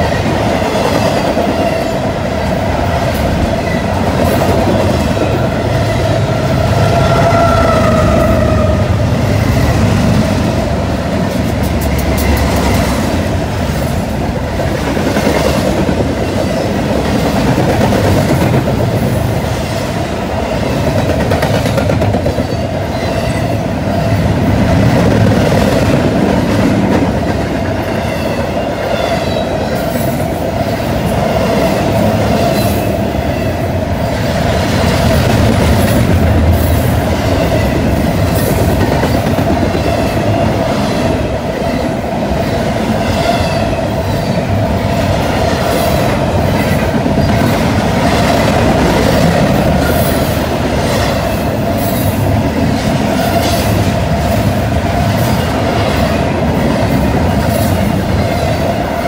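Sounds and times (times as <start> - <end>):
continuous train rumble: 0.0 - 59.0
train wheels clicking over rail joints: 11.1 - 19.5.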